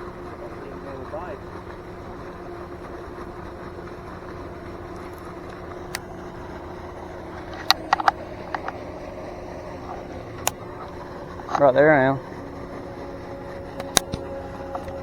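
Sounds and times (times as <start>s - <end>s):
mechanical hum: 0.0s - 15.0s
sharp clicks: 9.9s - 11.7s, 13.8s - 15.0s.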